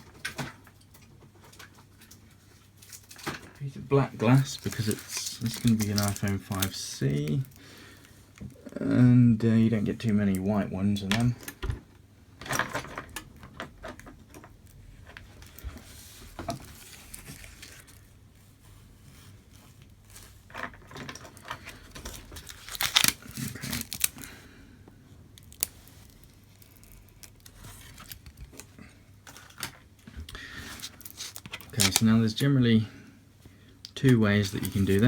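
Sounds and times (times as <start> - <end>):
plastic packaging crinkling: 1.5 - 8.7, 13.9 - 18.2, 19.8 - 24.6, 25.3 - 32.4, 34.0 - 35.0.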